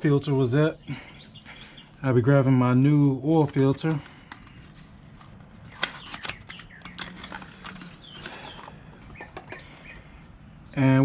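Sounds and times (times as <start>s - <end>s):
faint handling clicks and knocks: 3.4s - 10.1s
faint bird chirps: 4.4s - 11.0s.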